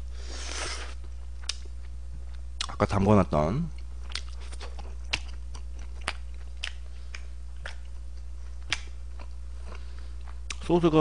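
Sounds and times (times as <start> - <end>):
low electrical hum: 0.0 - 11.0
mouth chewing and smacking: 1.0 - 2.8, 3.7 - 10.7.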